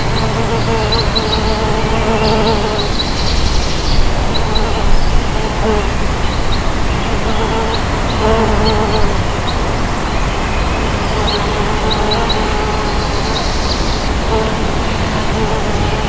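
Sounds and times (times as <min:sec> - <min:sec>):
bees buzzing in flight: 0:00.0 - 0:09.4, 0:11.1 - 0:16.0
background hiss: 0:00.0 - 0:16.0.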